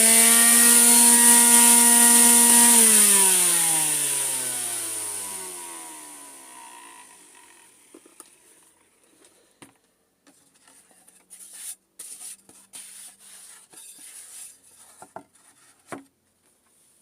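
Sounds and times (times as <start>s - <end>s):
quiet rubbing and scraping: 10.3s - 15.9s.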